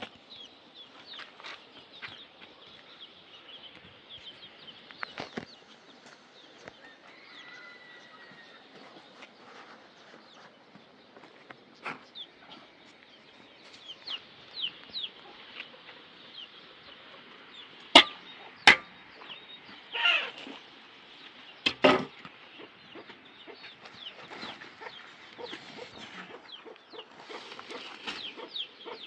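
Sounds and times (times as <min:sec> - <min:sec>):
chickens clucking: 0:08.4 - 0:20.7, 0:21.4 - 0:29.0.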